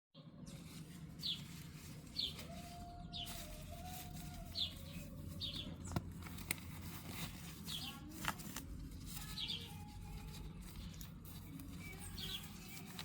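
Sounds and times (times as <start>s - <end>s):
birds chirping: 0.2s - 13.0s.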